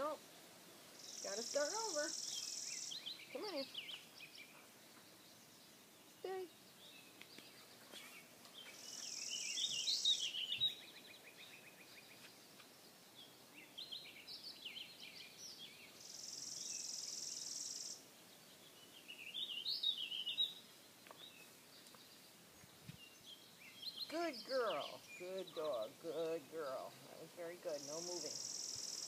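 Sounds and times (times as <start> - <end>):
songbirds singing: 0.0 - 29.0.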